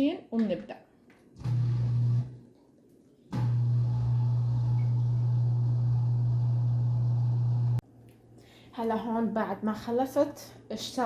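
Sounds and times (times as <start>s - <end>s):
dishwasher low hum: 3.3s - 7.8s.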